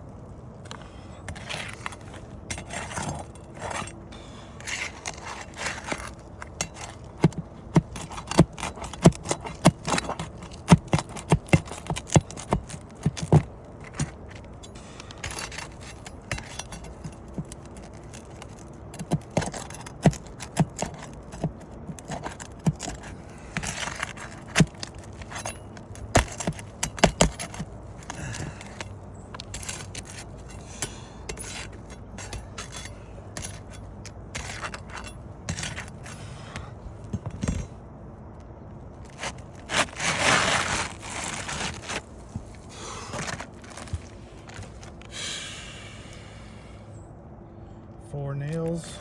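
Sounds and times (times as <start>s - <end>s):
metal tool tapping and scraping shingles: 0.6s - 37.8s, 38.9s - 45.1s.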